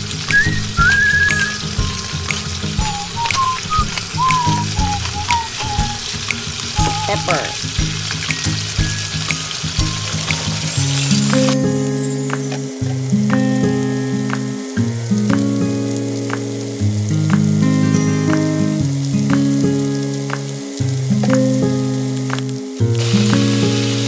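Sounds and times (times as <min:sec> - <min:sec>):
background music held notes: 0:00.0 - 0:24.0
chicken sizzling in oil: 0:00.0 - 0:24.0.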